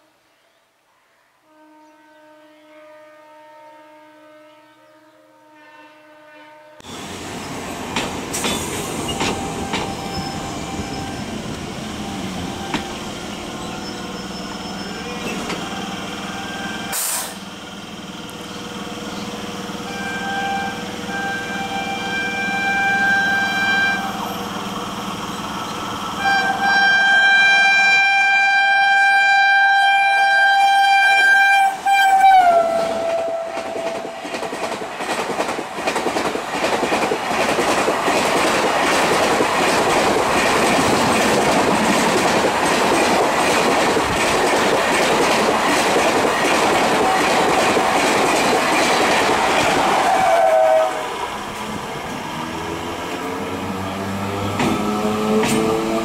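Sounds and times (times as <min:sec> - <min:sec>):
locomotive horn blasts: 0:01.4 - 0:06.9, 0:09.3 - 0:17.4, 0:19.8 - 0:24.3, 0:26.2 - 0:34.4, 0:50.0 - 0:51.1
train coaches clattering past: 0:06.8 - 0:27.6, 0:31.6 - 0:56.0.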